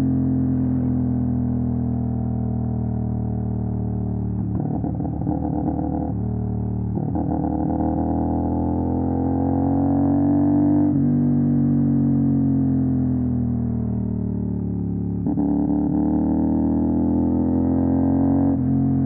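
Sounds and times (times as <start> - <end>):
motorcycle engine revving: 4.4 - 19.0.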